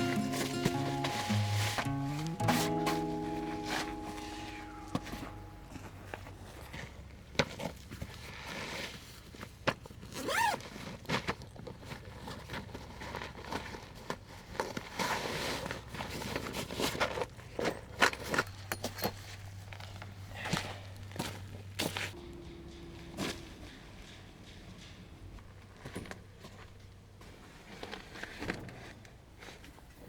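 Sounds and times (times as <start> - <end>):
handling scrapes and rustles: 0.0 - 22.2.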